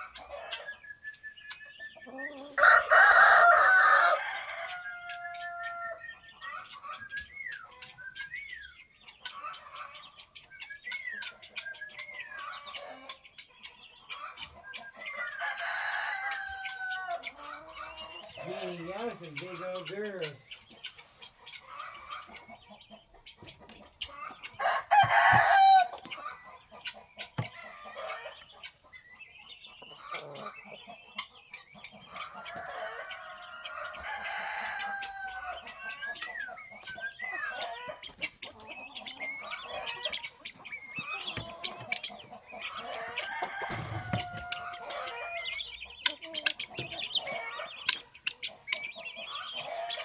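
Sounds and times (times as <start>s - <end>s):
chickens clucking: 0.0s - 50.0s
rooster crowing: 2.5s - 6.0s, 15.2s - 17.3s, 24.6s - 26.0s, 32.4s - 35.8s, 42.8s - 45.6s.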